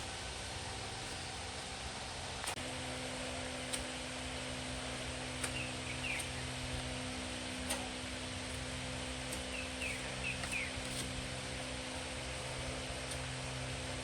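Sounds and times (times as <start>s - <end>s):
electrical hum and hiss: 0.0s - 14.0s
faint bird chirps: 5.4s - 6.8s, 9.3s - 11.0s.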